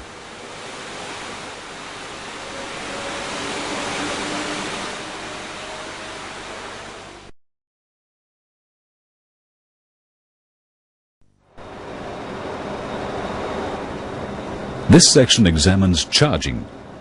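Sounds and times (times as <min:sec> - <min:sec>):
steady rushing hiss: 0:00.0 - 0:07.3
faint steady tones: 0:11.4 - 0:17.0.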